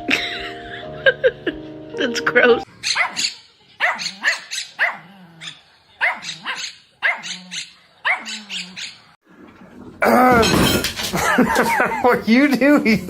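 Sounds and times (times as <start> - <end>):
dog barking: 2.8 - 9.1.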